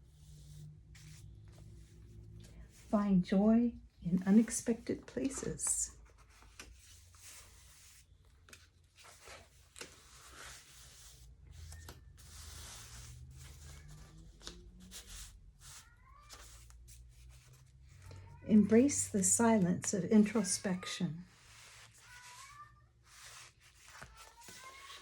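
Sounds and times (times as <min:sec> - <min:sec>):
paper pages turning: 0:04.2 - 0:19.3, 0:20.2 - 0:25.0.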